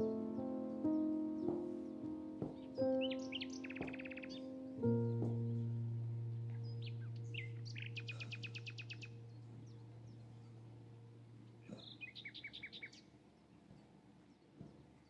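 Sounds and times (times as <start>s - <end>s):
bird trill: 0.0s - 10.8s, 11.6s - 13.0s
low sustained note: 0.0s - 11.9s
birds chirping: 0.0s - 13.5s.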